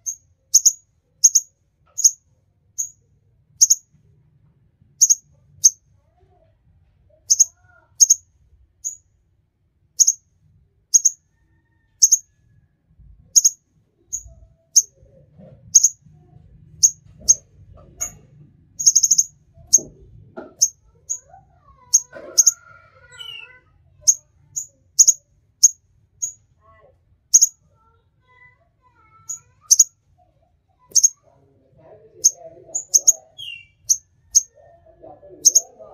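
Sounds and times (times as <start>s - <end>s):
songbird chirping: 0.0s - 3.0s, 3.6s - 3.9s, 5.0s - 5.8s, 7.2s - 9.1s, 10.0s - 10.3s, 10.9s - 12.3s, 13.3s - 26.4s, 27.3s - 27.6s, 29.2s - 30.0s, 30.8s - 35.9s.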